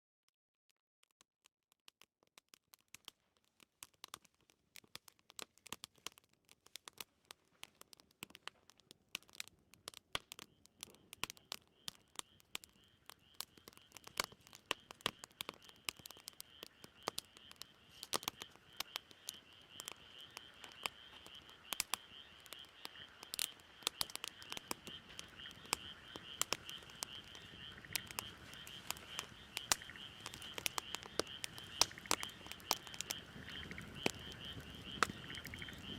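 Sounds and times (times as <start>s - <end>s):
wood fire crackling and popping: 2.0s - 35.9s
high-pitched animal chorus: 10.9s - 35.9s.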